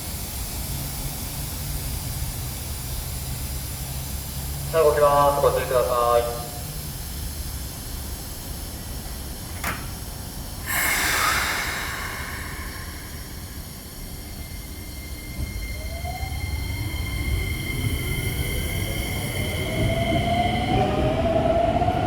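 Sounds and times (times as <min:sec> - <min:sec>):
loud hiss of air: 0:00.0 - 0:04.5, 0:06.8 - 0:15.6
traction motor whine rising: 0:10.7 - 0:18.8.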